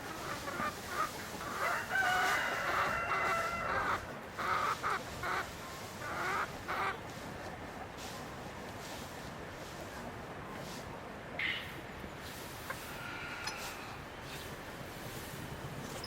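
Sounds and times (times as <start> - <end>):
chickens clucking: 0.0 - 9.0, 11.4 - 14.4
rooster crowing: 1.6 - 3.9.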